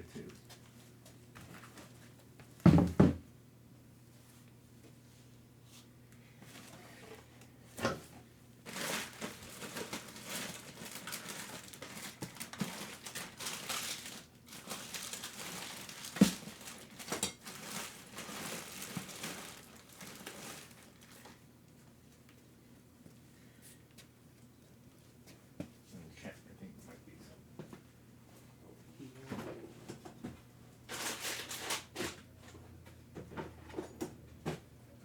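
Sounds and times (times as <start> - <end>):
plastic bags crinkling: 8.6 - 21.4, 30.9 - 31.9.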